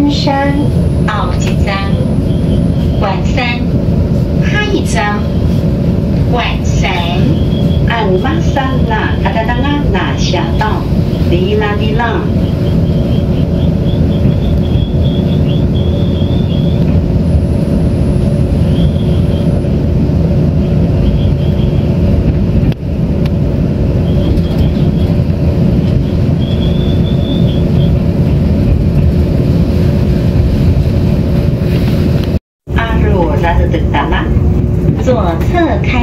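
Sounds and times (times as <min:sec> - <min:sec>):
train interior rumble: 0:00.0 - 0:36.0
high-pitched squeals: 0:00.4 - 0:03.6, 0:06.7 - 0:08.3, 0:10.8 - 0:19.6, 0:20.6 - 0:22.0, 0:24.0 - 0:28.0.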